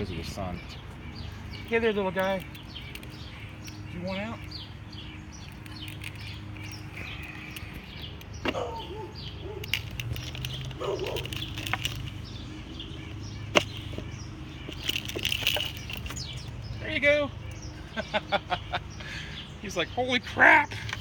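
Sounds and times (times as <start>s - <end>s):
small birds chirping: 0.0s - 21.0s
bird feeder clicks and knocks: 9.2s - 12.4s.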